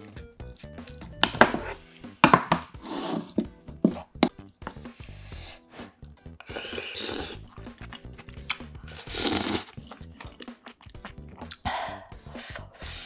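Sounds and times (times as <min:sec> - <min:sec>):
wet crunchy chewing: 0:06.4 - 0:11.7.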